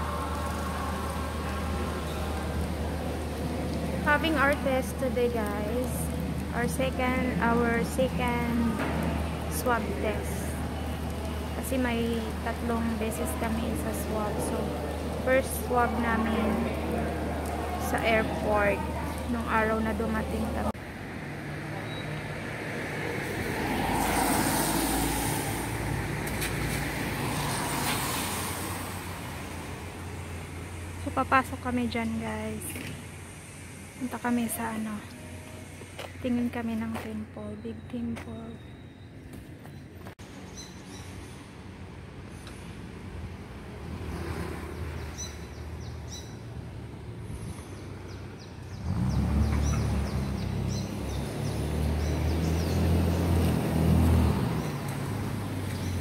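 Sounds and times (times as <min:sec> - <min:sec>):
cars passing on wet road: 0:00.0 - 0:37.4, 0:40.2 - 0:56.0
birds chirping: 0:47.4 - 0:53.4.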